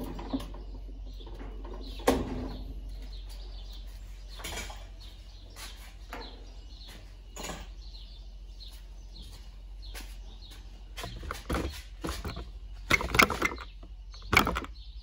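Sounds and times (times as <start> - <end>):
light clicks and knocks: 11.0 - 14.8.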